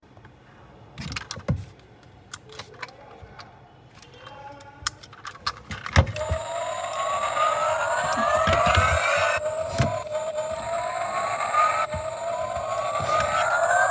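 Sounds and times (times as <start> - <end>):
clicks and taps of model car: 1.0 - 6.2
toy car motor whine: 6.0 - 13.9.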